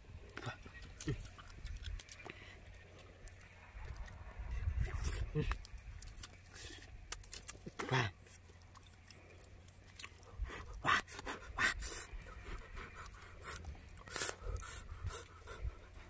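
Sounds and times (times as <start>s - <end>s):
person chewing wetly: 0.2s - 16.0s
sharp mouth clicks: 9.8s - 15.5s.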